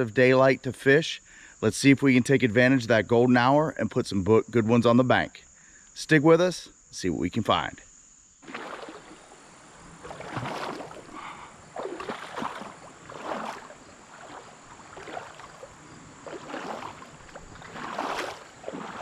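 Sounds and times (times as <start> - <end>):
high insect trill: 0.0 - 19.0
wading through water splashing: 8.4 - 19.0.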